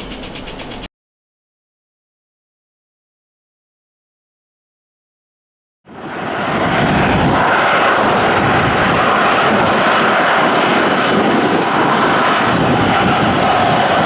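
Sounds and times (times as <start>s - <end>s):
jet engines running: 0.0s - 0.9s, 5.9s - 14.0s.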